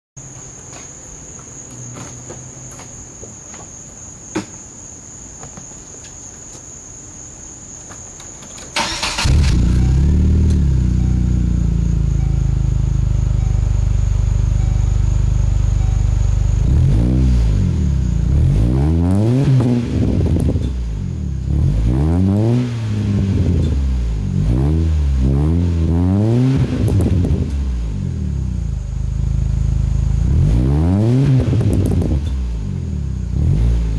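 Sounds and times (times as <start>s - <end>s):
faint high whine: 5.4s - 19.1s
car engine starting and idling: 8.7s - 33.9s
car engine revving: 8.8s - 33.9s.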